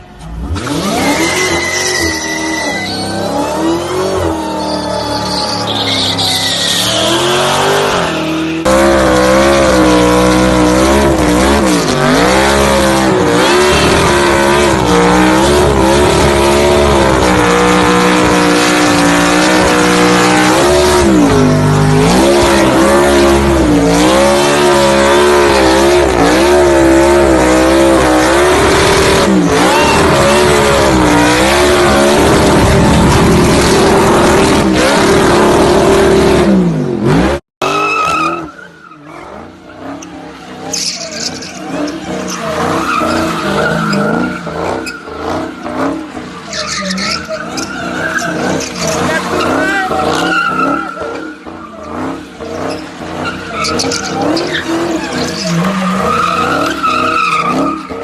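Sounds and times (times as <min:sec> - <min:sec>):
car engine revving: 0:00.0 - 0:58.0
tyre squeal: 0:00.6 - 0:08.6, 0:29.4 - 0:32.5, 0:37.6 - 0:58.0.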